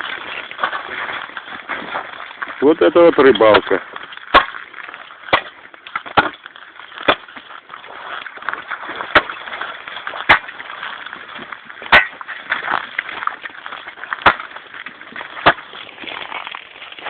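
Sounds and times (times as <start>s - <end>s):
axe chopping: 3.4s - 8.1s, 8.7s - 15.8s.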